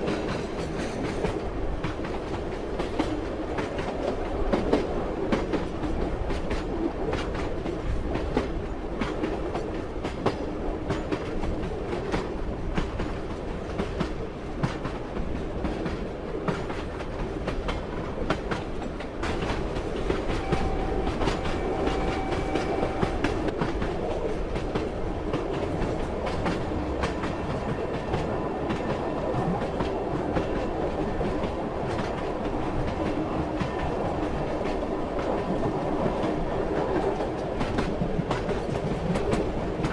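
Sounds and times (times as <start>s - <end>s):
train rumble: 0.0s - 39.9s
train wheels clickety-clack: 0.0s - 39.9s.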